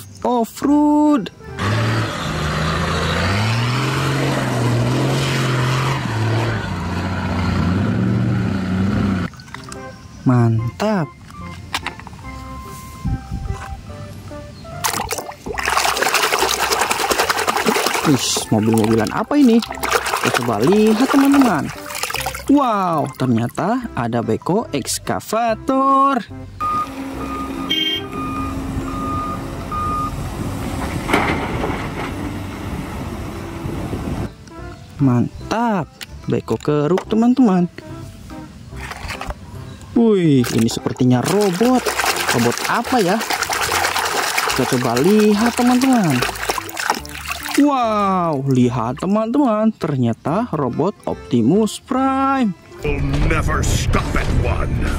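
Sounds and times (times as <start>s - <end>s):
engine rumble: 1.3s - 10.0s, 26.4s - 35.4s
reversing alarm beeping: 26.6s - 30.2s.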